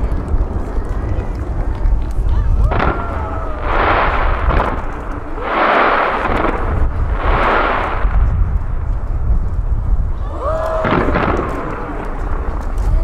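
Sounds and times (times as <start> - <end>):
fireworks booming: 0.0 - 13.0
fireworks crackling: 0.0 - 13.0
rushing swells: 2.4 - 12.7.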